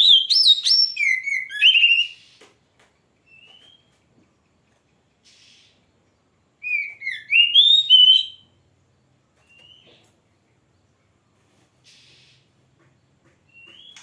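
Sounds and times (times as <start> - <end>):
bird singing whistled notes: 0.0 - 2.4, 3.2 - 3.9, 6.6 - 8.6, 9.4 - 10.0, 13.5 - 14.0.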